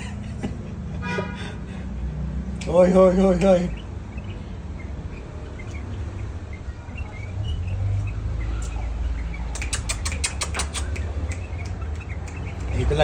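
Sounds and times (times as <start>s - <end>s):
birds chirping faintly: 1.7s - 13.0s
sharp clicks: 8.0s - 13.0s.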